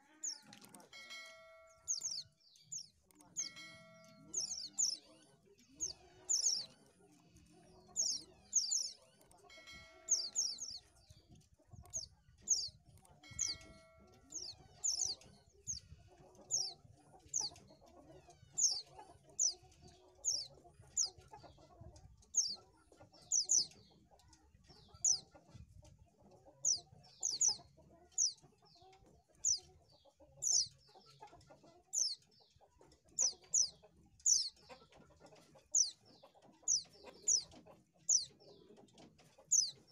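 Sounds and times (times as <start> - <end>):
bird high chirps: 0.1 - 6.8, 7.8 - 11.2, 11.8 - 17.6, 18.4 - 21.3, 23.2 - 23.8, 24.8 - 25.3, 26.7 - 27.6, 29.4 - 29.7, 30.4 - 30.8, 33.2 - 34.8, 36.6 - 38.6, 39.4 - 39.9.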